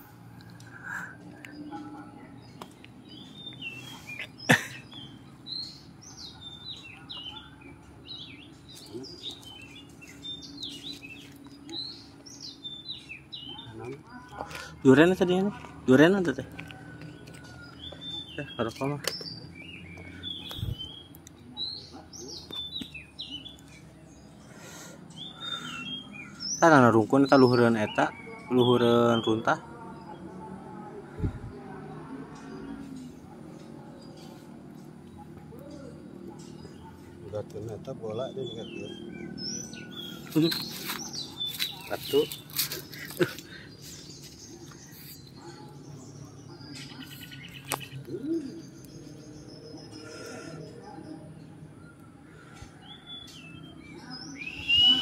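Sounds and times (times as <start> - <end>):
songbirds chirping: 0.0 - 55.0
bird singing high whistled notes: 53.3 - 55.0.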